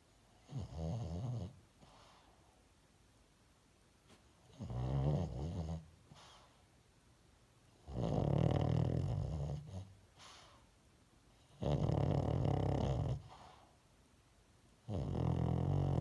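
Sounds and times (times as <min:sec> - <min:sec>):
dog snoring: 0:00.4 - 0:02.2, 0:04.4 - 0:06.5, 0:07.8 - 0:10.6, 0:11.4 - 0:13.7, 0:14.8 - 0:16.0
faint breath: 0:01.8 - 0:02.7, 0:06.1 - 0:06.7, 0:10.1 - 0:10.8, 0:13.2 - 0:13.9.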